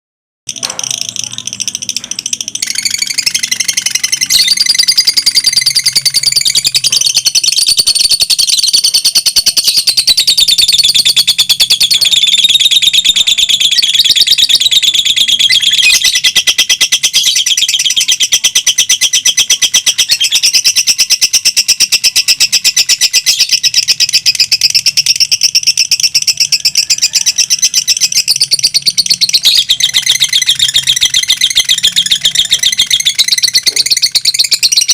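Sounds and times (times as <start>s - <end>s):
lovebirds shrill chattering trill: 0.5s - 34.9s.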